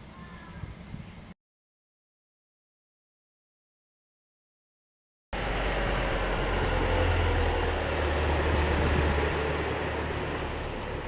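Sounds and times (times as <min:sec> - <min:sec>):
wind and road noise: 0:05.4 - 0:11.0.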